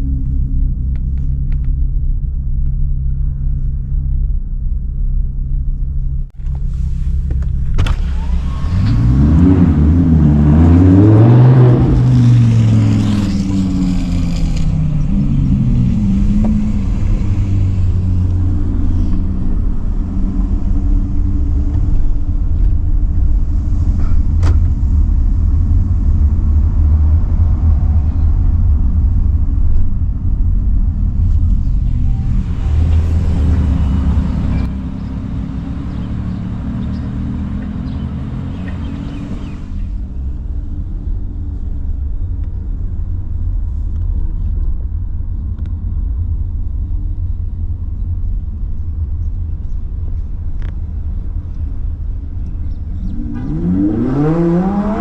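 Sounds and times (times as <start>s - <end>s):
sports car engine revving: 7.5s - 21.7s, 31.2s - 40.2s, 52.6s - 55.0s.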